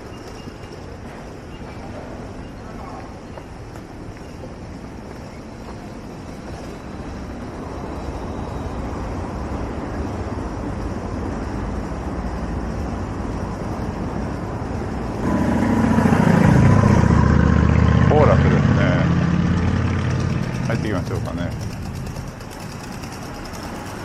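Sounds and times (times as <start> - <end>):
car rumble: 12.7 - 22.9
vehicle engine close by: 15.0 - 24.0.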